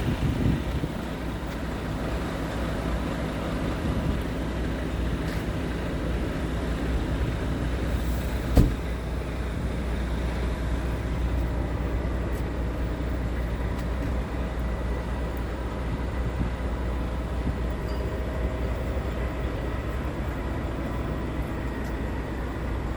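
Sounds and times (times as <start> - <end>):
diesel truck engine idling: 0.0 - 22.9
sharp knock: 8.5 - 8.8.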